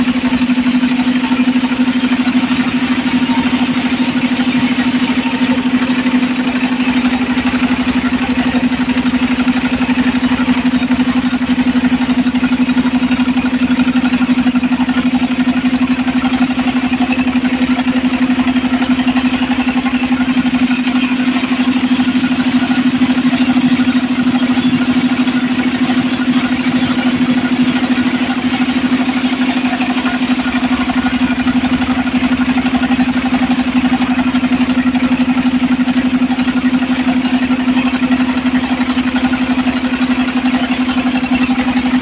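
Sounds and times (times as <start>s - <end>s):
saw engine running steadily: 0.0s - 42.0s.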